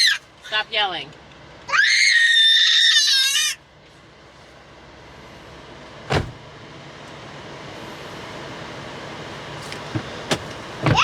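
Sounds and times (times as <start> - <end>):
child screaming: 1.7 - 3.6
car road noise: 3.4 - 11.0
short thump: 6.1 - 6.4.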